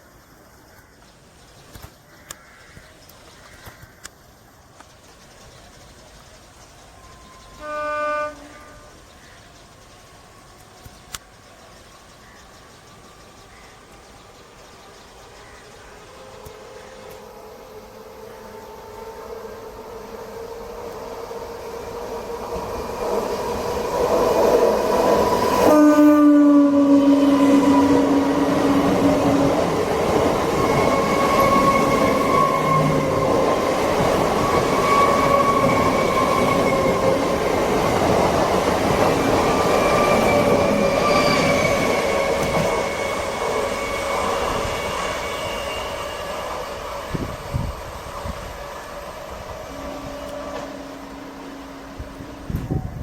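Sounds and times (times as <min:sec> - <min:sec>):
rumble of train coaches: 0:00.0 - 0:53.0
train horn: 0:07.0 - 0:09.3, 0:25.4 - 0:29.4, 0:39.9 - 0:47.6, 0:48.8 - 0:53.0.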